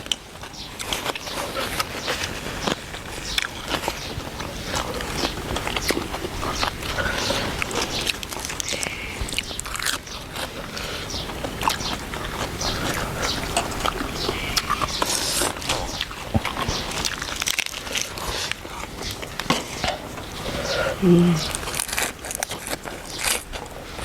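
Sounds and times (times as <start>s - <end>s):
person chewing and biting: 0.0s - 24.0s
mouth clicks and smacks: 2.6s - 23.7s.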